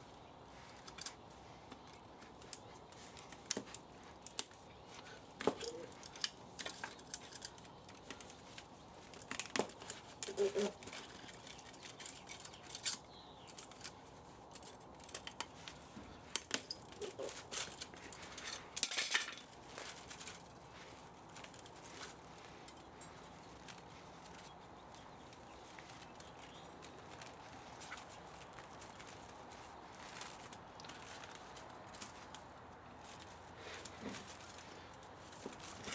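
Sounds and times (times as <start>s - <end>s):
metal parts clinking and knocking: 16.4s - 20.8s.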